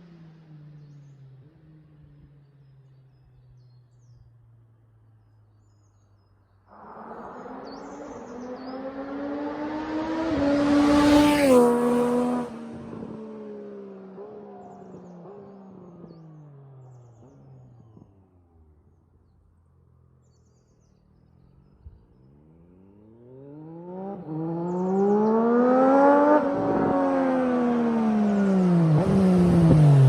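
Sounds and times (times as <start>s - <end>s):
motorcycle engine passing by: 6.7s - 17.6s, 22.7s - 30.0s.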